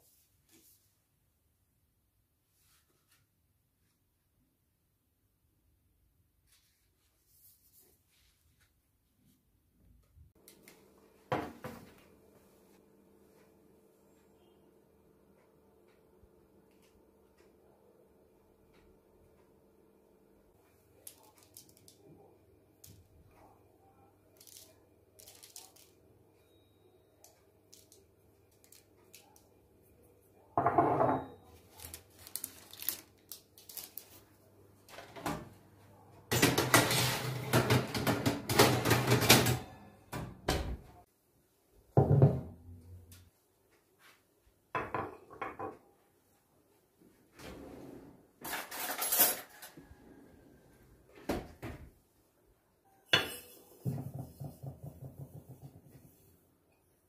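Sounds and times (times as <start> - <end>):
dishes and cutlery clattering: 48.4 - 49.7, 53.2 - 55.5.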